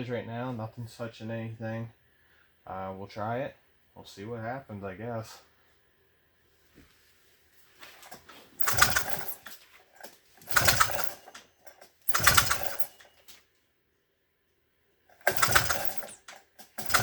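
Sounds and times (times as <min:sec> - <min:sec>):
engine cranking without starting: 0:08.0 - 0:13.2, 0:15.1 - 0:17.0.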